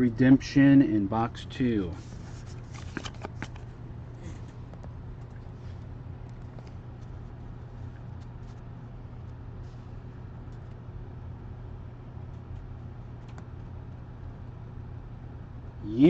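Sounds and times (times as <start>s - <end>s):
room noise hum: 0.0s - 16.0s
trading cards clicking: 2.6s - 3.7s.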